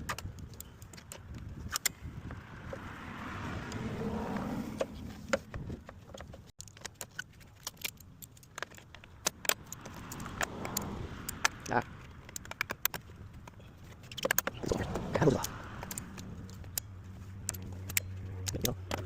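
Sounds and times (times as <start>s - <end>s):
sharp clicks and knocks: 4.8s - 19.0s
broad rushing sound: 14.5s - 16.7s.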